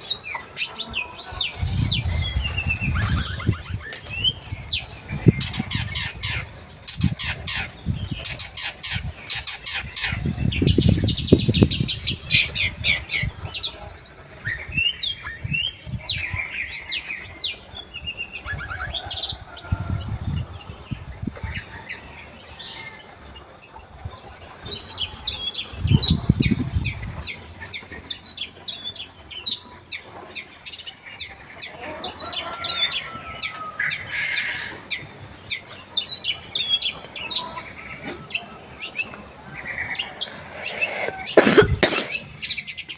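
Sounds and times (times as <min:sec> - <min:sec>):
bird chirping and trilling: 0:00.0 - 0:42.9.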